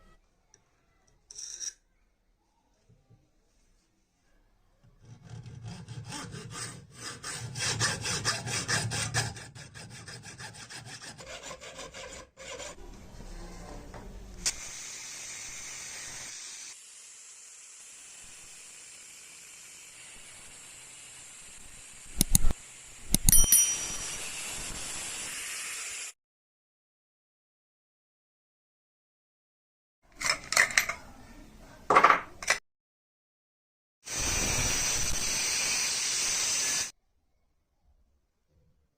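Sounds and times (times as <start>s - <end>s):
filing on metal: 5.0s - 12.8s
sharp click: 22.2s - 23.4s
steady hiss: 34.1s - 36.9s.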